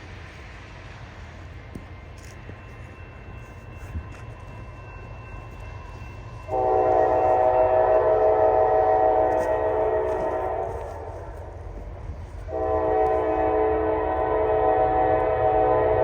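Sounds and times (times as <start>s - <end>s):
locomotive air horn blast: 6.5s - 11.5s, 12.5s - 16.0s.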